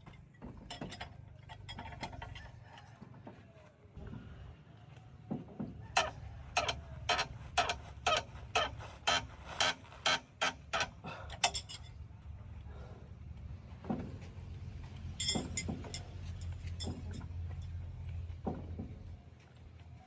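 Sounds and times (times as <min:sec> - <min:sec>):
metallic clanks of track chain: 0:00.0 - 0:02.8, 0:06.0 - 0:12.0, 0:14.8 - 0:17.9.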